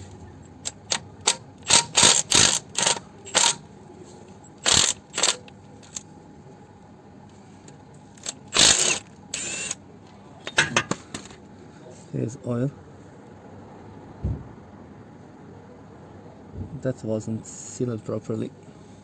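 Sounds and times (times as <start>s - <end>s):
impact wrench bursts: 0.6s - 3.6s, 4.6s - 6.0s, 8.2s - 9.8s.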